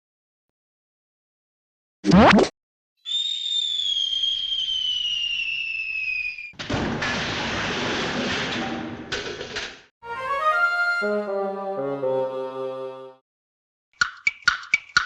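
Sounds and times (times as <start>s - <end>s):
cartoon whistle falling in pitch: 3.0s - 6.5s
cartoon explosion crash: 4.5s - 8.7s.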